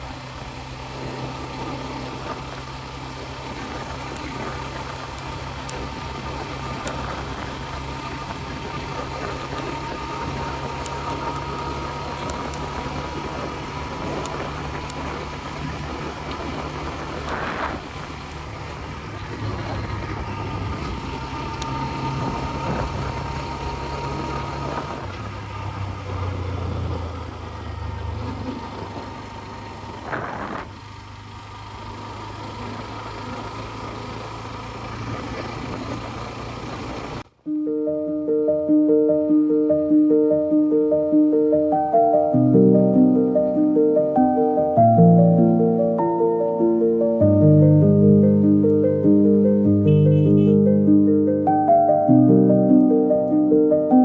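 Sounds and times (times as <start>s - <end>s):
constant whine: 0.0s - 37.4s
scooter engine running: 0.0s - 37.4s, 47.2s - 53.1s.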